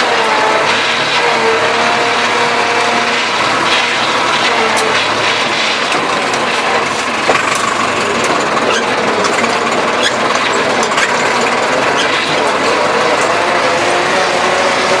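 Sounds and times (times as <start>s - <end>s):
tractor engine running: 0.0s - 15.0s
sharp machinery clicks: 2.8s - 13.6s
mechanical rattle: 3.5s - 13.3s.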